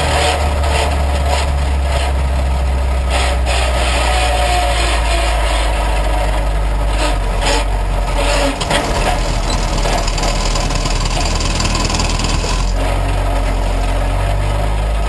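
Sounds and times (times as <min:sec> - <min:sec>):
race car engine idling: 0:06.3 - 0:14.2
short clatters: 0:08.2 - 0:12.8.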